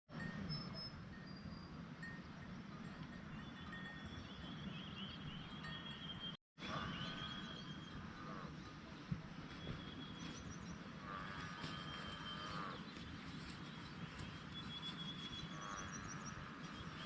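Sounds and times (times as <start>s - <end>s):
small birds chirping: 3.4s - 17.0s
low outdoor background noise: 6.2s - 17.0s.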